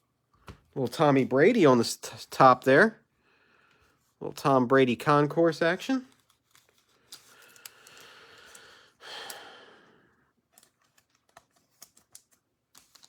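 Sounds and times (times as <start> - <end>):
trading cards sliding rustles: 6.1 - 8.6, 10.5 - 13.0.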